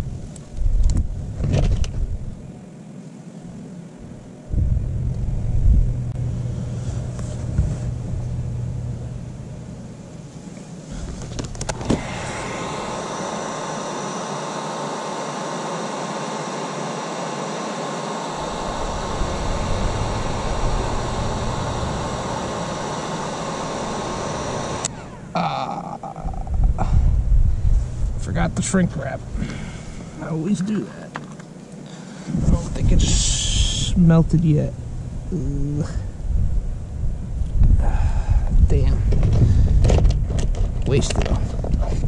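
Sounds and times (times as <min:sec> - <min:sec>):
low rumble: 0:04.0 - 0:10.0, 0:18.4 - 0:29.4
heat gun hissing and whining: 0:06.0 - 0:36.2.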